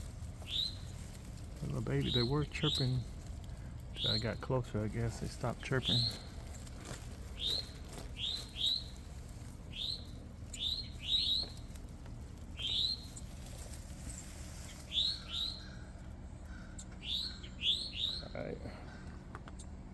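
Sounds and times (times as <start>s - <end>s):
songbird chirping: 0.0s - 19.8s.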